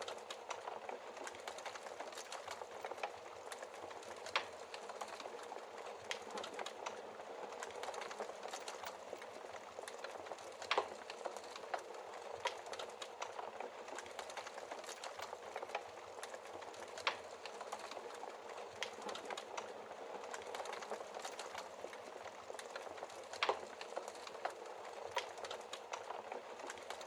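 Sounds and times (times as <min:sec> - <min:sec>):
wood fire crackling in fireplace: 0:00.0 - 0:27.0.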